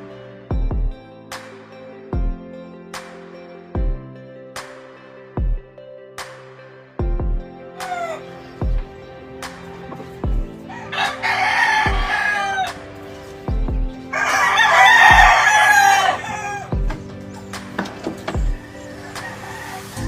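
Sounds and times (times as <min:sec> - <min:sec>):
background music with slow beat: 0:00.0 - 0:20.0
rooster crowing: 0:07.8 - 0:08.4, 0:10.6 - 0:12.9, 0:14.1 - 0:16.9, 0:18.4 - 0:20.0.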